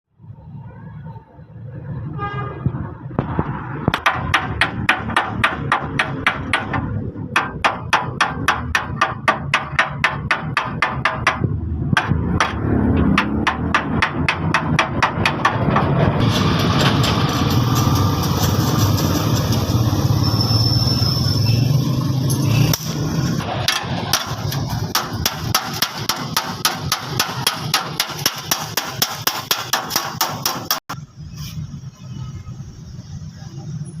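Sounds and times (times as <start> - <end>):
loud steady noise with low hum: 2.6 - 20.5
hammer blows on sheet metal: 3.2 - 19.7, 22.7 - 31.0.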